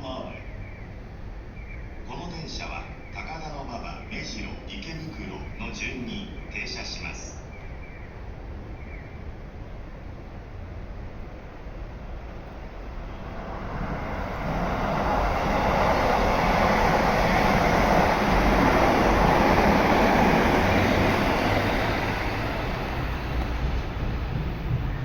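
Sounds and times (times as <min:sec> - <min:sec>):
electric train passing: 0:00.0 - 0:25.0.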